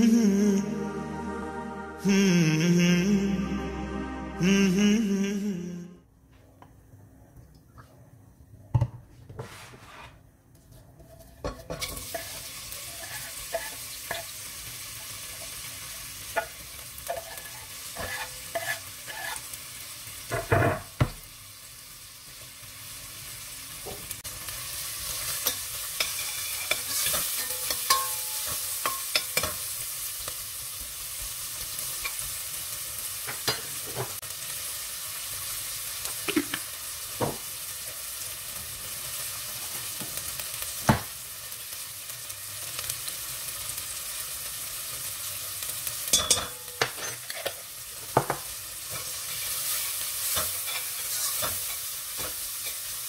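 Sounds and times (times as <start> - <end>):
onion and garlic sizzling in oil: 9.5 - 53.0
utensil scraping metal pot: 11.0 - 14.3, 17.1 - 19.5.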